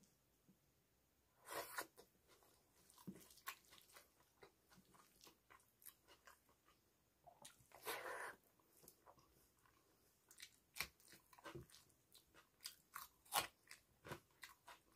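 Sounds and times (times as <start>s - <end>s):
person chewing food: 1.4s - 14.9s.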